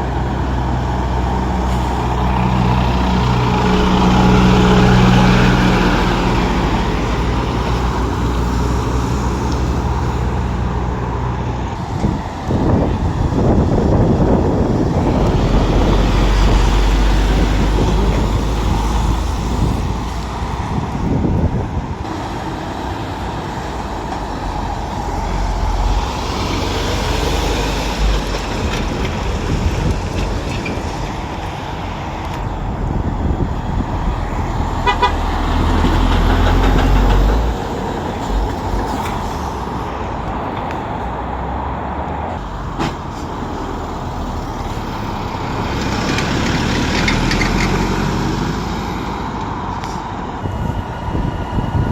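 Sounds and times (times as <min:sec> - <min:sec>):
heavy lorry engines rumbling: 0:00.0 - 0:51.9
truck horn toot: 0:34.8 - 0:35.4.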